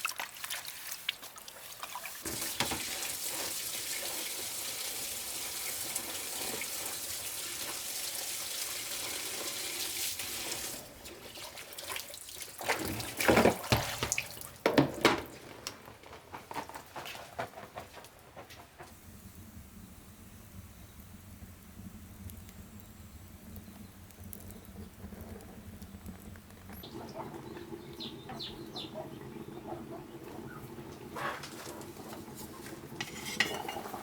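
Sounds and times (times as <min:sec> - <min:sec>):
water pouring into a basin: 0:00.0 - 0:14.6
sharp knocks and clatters: 0:12.8 - 0:19.0.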